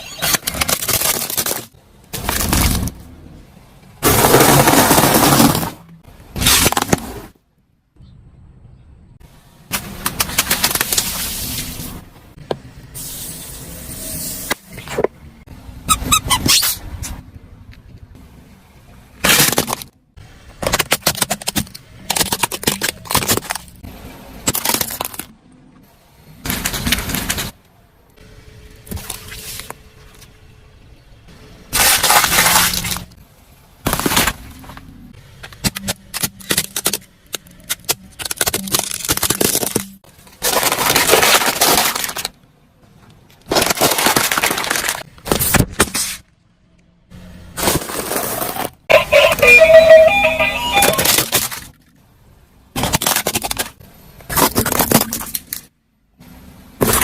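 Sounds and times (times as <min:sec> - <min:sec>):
objects crunching under car tyres: 0:00.0 - 0:03.3, 0:04.0 - 0:07.4, 0:31.7 - 0:33.2, 0:33.8 - 0:42.4, 0:43.3 - 0:46.3, 0:47.5 - 0:52.0, 0:52.8 - 0:55.7.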